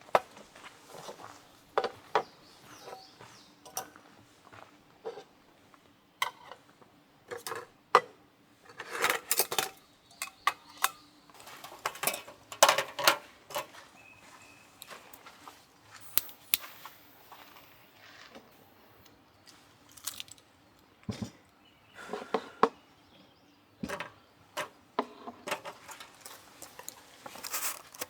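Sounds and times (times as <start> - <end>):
tableware clinking and clattering: 11.6 - 13.7.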